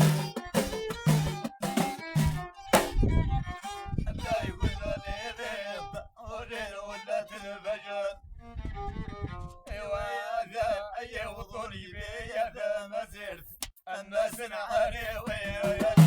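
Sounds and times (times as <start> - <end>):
drum beats: 0.0 - 3.1, 15.3 - 16.0
violin playing folk melody: 0.0 - 10.1.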